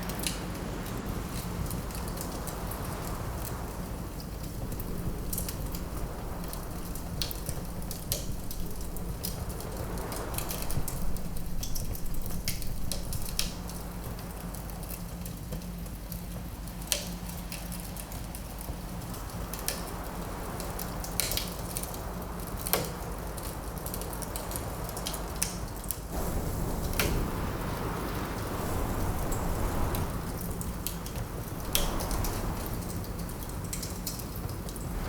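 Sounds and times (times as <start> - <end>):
steady low rumble: 0.0 - 14.8, 34.7 - 35.0
wind blowing: 0.0 - 14.8, 26.1 - 35.0
wood fire crackling: 0.0 - 35.0.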